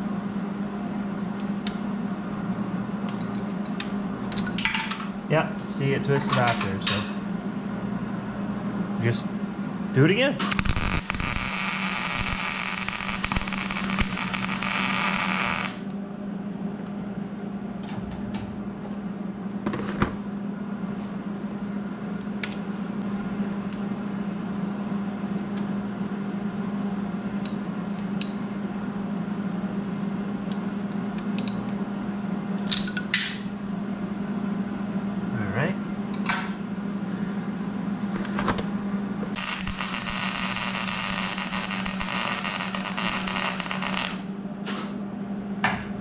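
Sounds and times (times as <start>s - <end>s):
steady low hum: 0.0s - 32.6s, 33.4s - 46.0s
welder arc crackling and hissing: 10.4s - 15.9s, 39.4s - 44.3s.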